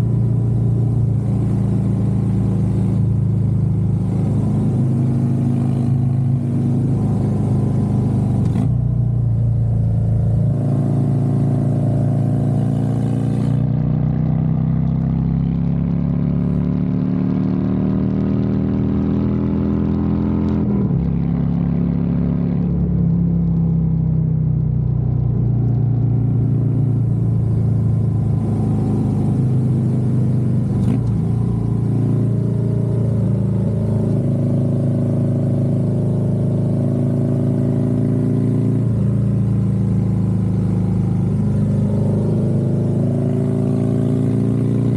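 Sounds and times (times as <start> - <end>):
motorcycle engine: 25.4 - 44.9.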